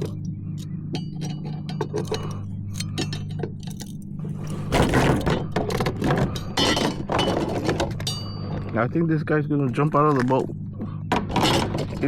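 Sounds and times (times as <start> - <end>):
clinking and rattling: 0.0 - 8.7.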